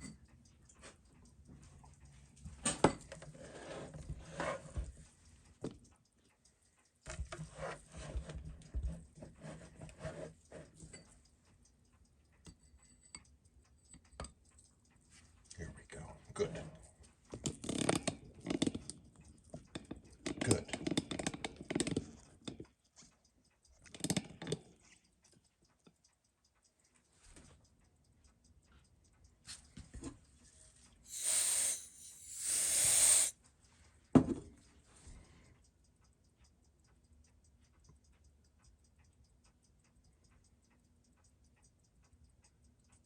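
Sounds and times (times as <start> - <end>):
mechanical watch ticking: 0.0 - 43.0
bursts of hiss: 31.1 - 33.3.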